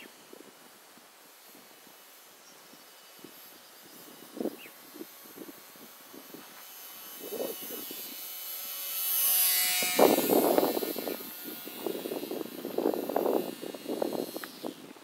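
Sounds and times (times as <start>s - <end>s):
electric model plane motor whine: 0.0s - 15.0s
wind buffeting microphone: 3.2s - 8.5s, 9.3s - 15.0s.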